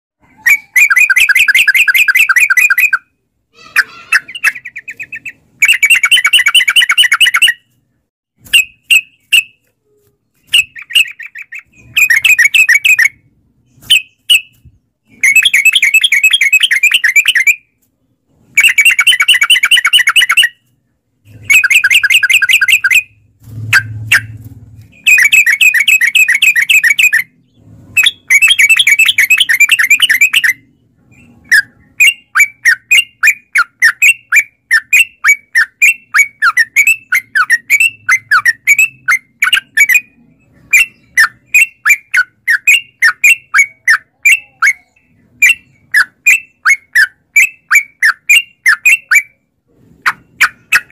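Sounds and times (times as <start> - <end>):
bird singing chattering run: 21.3 - 49.2.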